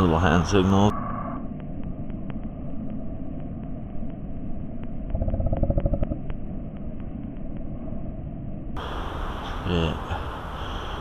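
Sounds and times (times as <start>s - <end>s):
vehicle engine rumbling: 4.7s - 8.0s.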